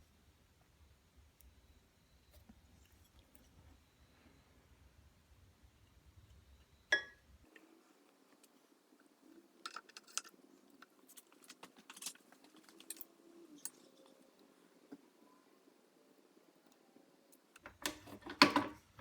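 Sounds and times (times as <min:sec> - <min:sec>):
metal parts clicking and scraping: 0:09.6 - 0:14.2.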